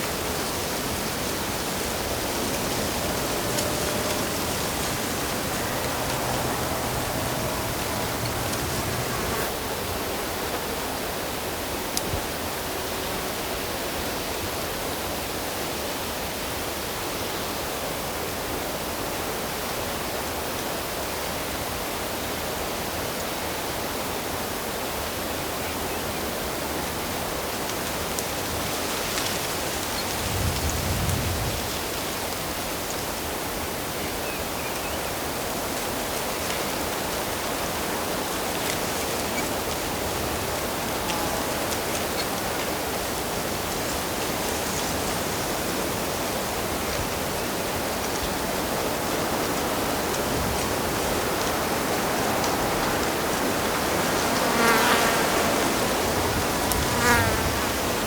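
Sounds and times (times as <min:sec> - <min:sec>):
water rushing: 0:00.0 - 0:09.6.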